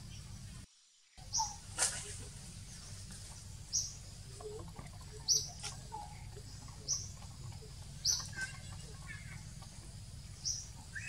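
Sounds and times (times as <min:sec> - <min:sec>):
low steady rumble: 0:00.0 - 0:11.0
bird chirping: 0:01.2 - 0:11.0.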